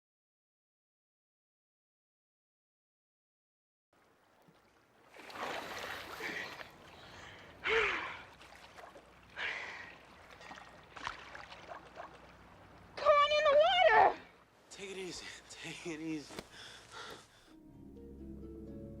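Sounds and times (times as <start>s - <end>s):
person gasping and breathing hard: 16.5s - 17.5s.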